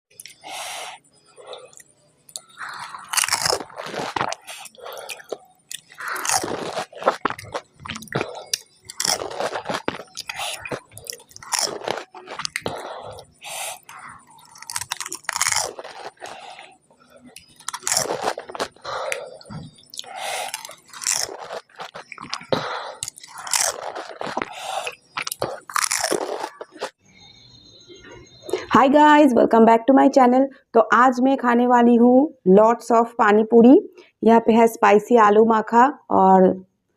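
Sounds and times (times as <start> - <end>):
quiet chewing: 1.3 - 27.0
crunching crisp shells: 1.6 - 27.0.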